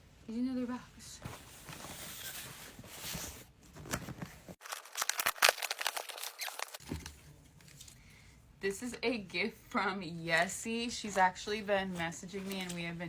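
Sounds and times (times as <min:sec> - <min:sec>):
packaging rustling and tearing: 0:01.7 - 0:07.1.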